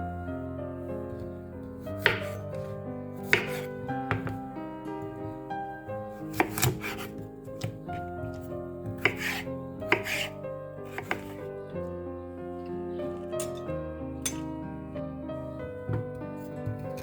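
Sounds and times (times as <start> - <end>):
background music with held notes: 0.0 - 17.0
knife chopping on cutting board: 1.9 - 4.4, 6.3 - 11.5, 15.9 - 17.0.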